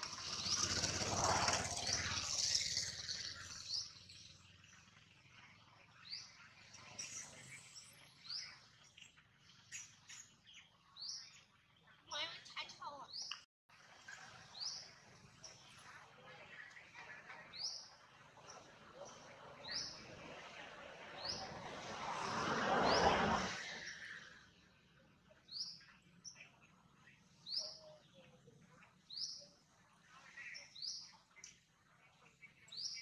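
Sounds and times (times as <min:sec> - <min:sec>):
broad rushing noise: 0:18.5 - 0:24.5.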